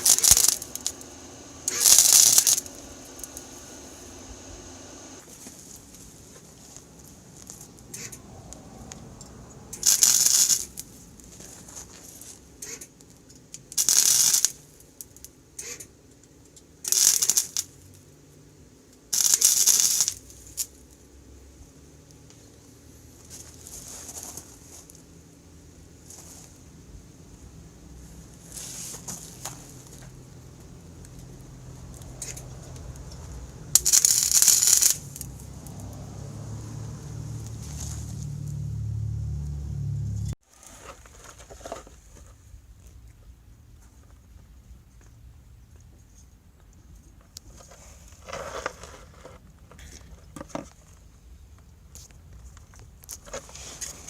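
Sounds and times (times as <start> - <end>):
arc welding crackle: 0.0 - 5.3, 9.7 - 11.0, 13.6 - 15.9, 16.8 - 17.8, 19.1 - 20.8, 29.2 - 35.9
steady low hum: 0.0 - 11.3.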